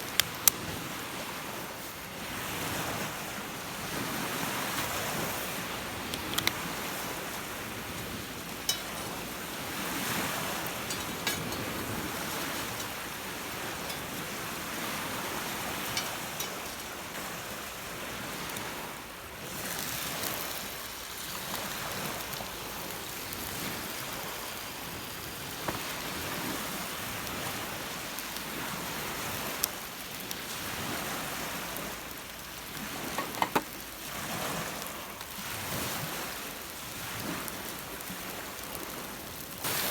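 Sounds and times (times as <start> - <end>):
sharp clicks: 0.0 - 0.6
waves breaking on shore: 0.0 - 39.9
wind: 0.0 - 39.9.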